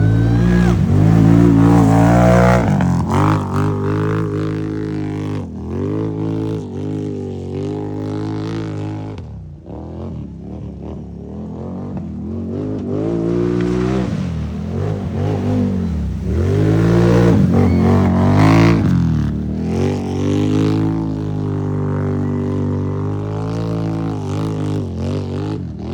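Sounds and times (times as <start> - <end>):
atv engine revving: 0.0 - 25.9.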